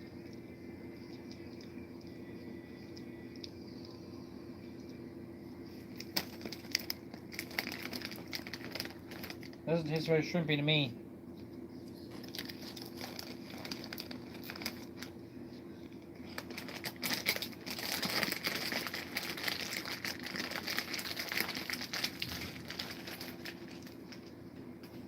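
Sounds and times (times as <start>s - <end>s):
steady low hum: 0.0s - 25.0s
plastic wrapper crinkling: 5.9s - 9.6s, 12.1s - 15.2s, 16.2s - 24.4s.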